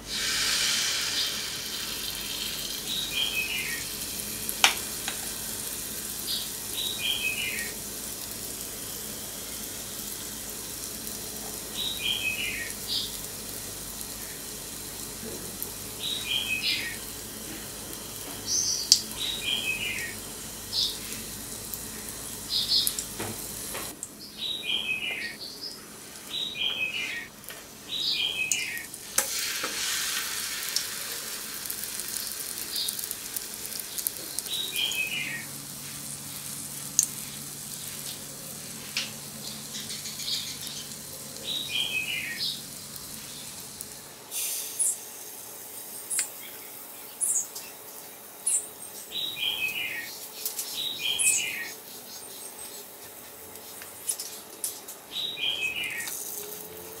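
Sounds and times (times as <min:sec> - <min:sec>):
batter sizzling in hot oil: 0:00.0 - 0:57.0
bird chirping: 0:02.9 - 0:03.9, 0:18.5 - 0:21.0, 0:24.2 - 0:27.3, 0:27.9 - 0:28.9, 0:34.5 - 0:35.5, 0:48.4 - 0:52.9, 0:55.1 - 0:56.1.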